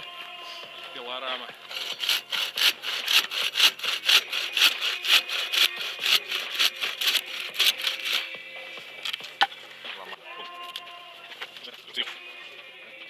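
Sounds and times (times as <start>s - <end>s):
hand saw cutting wood: 1.7s - 8.3s.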